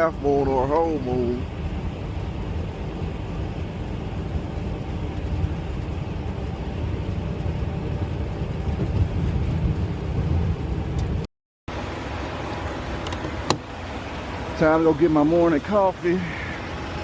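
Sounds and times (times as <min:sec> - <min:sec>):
diesel truck engine rumble: 0:00.0 - 0:17.0
road noise: 0:00.0 - 0:17.0.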